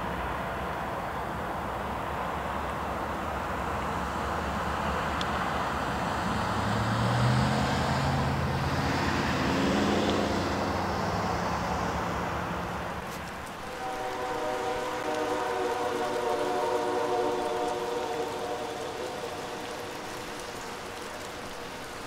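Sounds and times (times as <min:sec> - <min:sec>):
train wheels rumbling on rail: 0:08.4 - 0:22.0
locomotive air horn: 0:13.0 - 0:20.9.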